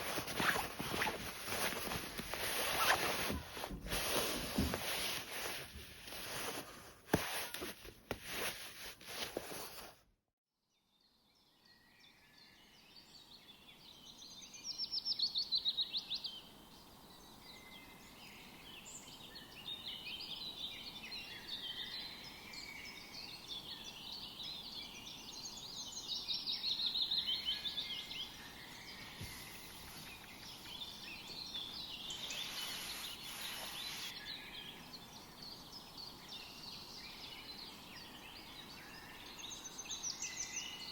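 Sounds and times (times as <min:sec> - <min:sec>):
handling noise clicking and rustling: 0:00.0 - 0:09.8
steady background hiss: 0:00.0 - 0:09.9, 0:13.1 - 0:40.9
birds singing and chirping: 0:23.6 - 0:40.9
rapid bird trills: 0:32.1 - 0:34.2.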